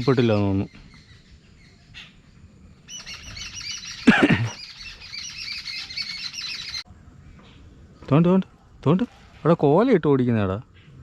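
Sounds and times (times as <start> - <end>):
flock of birds chirping: 0.0 - 9.9
bird call with falling pitch: 2.9 - 6.9.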